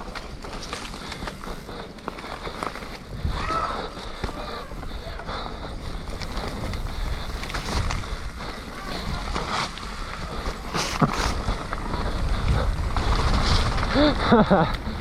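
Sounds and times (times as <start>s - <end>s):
wind rushing over microphone: 3.0s - 15.0s.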